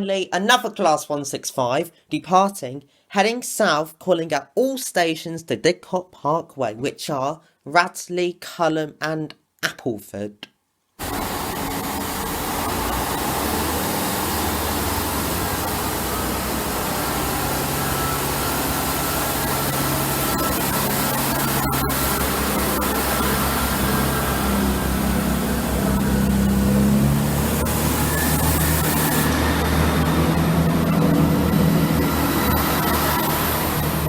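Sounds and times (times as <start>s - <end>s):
train diesel engines humming: 11.0s - 34.0s.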